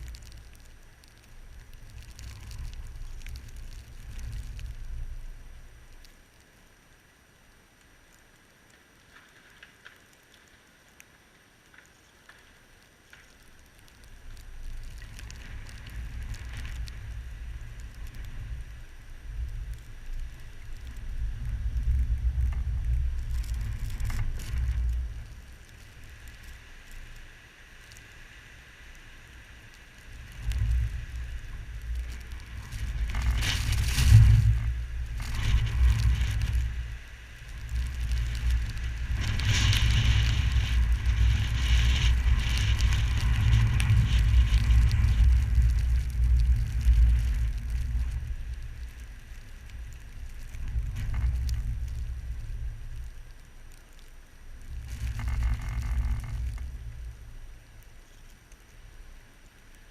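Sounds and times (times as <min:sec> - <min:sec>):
wind hiss: 0:00.0 - 0:59.9
wind buffeting microphone: 0:30.1 - 0:53.2.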